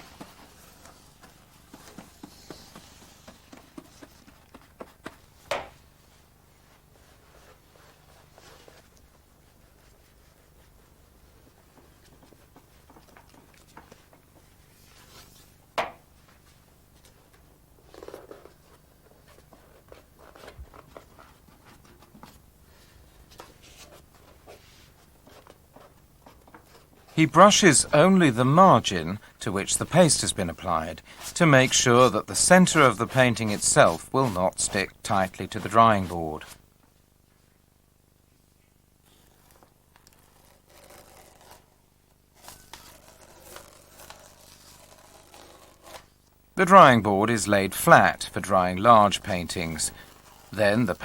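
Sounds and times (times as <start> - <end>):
paper rustling: 0.0 - 5.4, 16.2 - 36.6, 39.1 - 41.8, 42.4 - 46.2
paste brush strokes on paper: 29.7 - 36.6.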